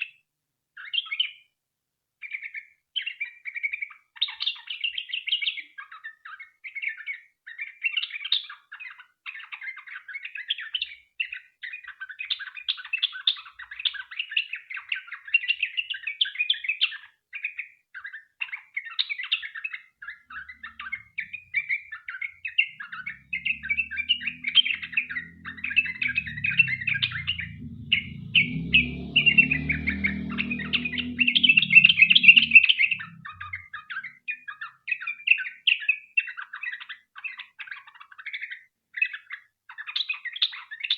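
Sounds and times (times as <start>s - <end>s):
low rumble: 22.4s - 33.8s.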